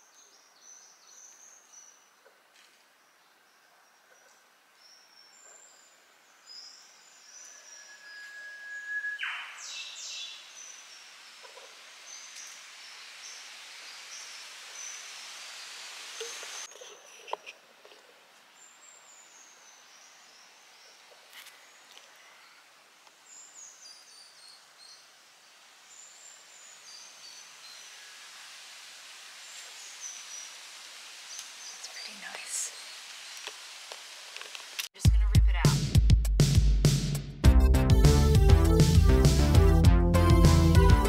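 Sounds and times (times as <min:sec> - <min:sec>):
short high bird chirps: 0:07.5 - 0:10.2
whistled bird call with whip-crack: 0:07.6 - 0:09.8
rising hiss: 0:09.5 - 0:16.7.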